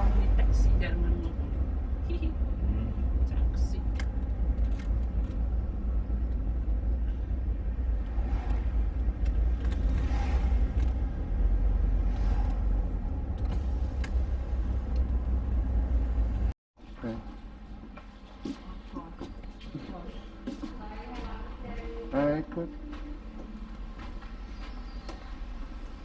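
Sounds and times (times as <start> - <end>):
road and engine rumble in car: 0.0 - 16.6.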